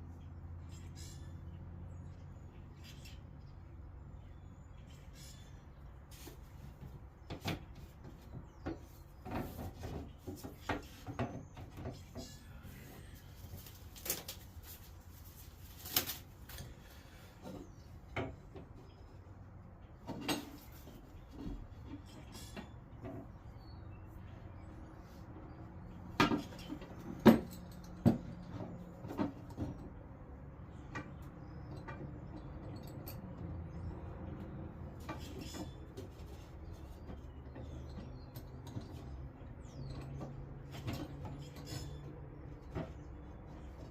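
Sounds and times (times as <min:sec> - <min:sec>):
knocks clicks and clunks: 0:25.5 - 0:43.9.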